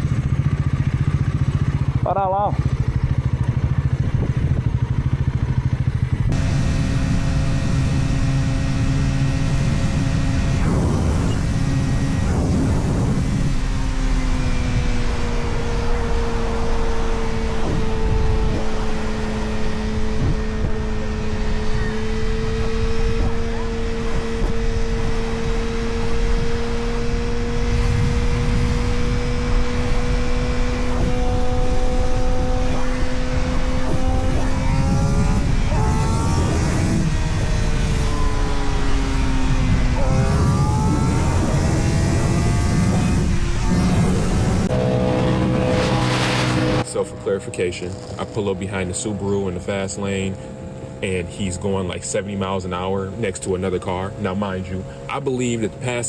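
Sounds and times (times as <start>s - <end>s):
motorcycle engine running: 0.0s - 56.0s
rushing wind noise: 3.7s - 46.9s.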